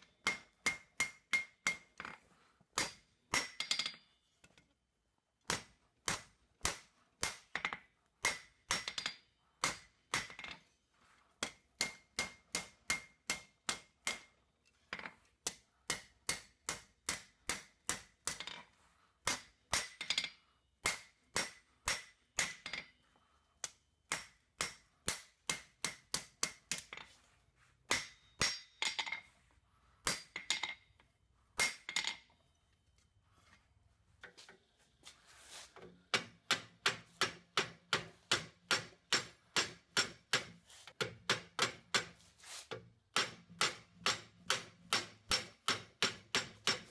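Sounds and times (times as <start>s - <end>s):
hammer striking steel on anvil: 0.0s - 2.0s, 2.8s - 4.0s, 5.5s - 10.6s, 11.4s - 14.3s, 15.5s - 18.6s, 19.2s - 22.9s, 23.6s - 27.1s, 27.9s - 29.3s, 30.0s - 30.8s, 31.6s - 32.2s, 36.1s - 42.2s, 43.1s - 46.9s
high anvil ring: 27.9s - 29.3s.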